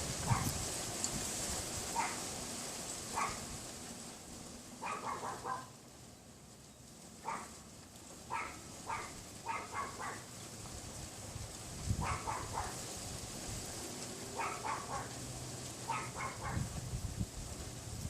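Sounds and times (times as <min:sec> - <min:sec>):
wind noise: 0:00.0 - 0:02.2, 0:10.8 - 0:13.8, 0:15.9 - 0:18.0
small dog yapping: 0:00.2 - 0:00.6, 0:01.9 - 0:02.3, 0:03.1 - 0:03.4, 0:04.8 - 0:05.7, 0:07.2 - 0:07.5, 0:08.3 - 0:10.3, 0:12.0 - 0:12.8, 0:14.4 - 0:15.1, 0:15.9 - 0:16.7.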